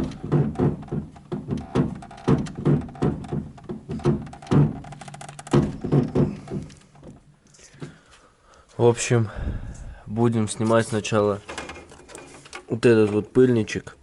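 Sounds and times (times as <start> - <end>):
steering rack creaking: 0.0 - 7.3.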